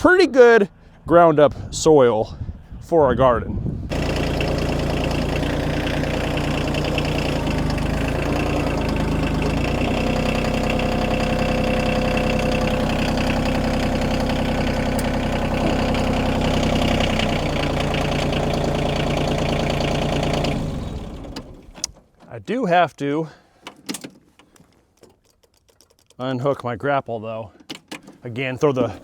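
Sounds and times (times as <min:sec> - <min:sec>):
tractor diesel engine idling: 0:03.9 - 0:21.9.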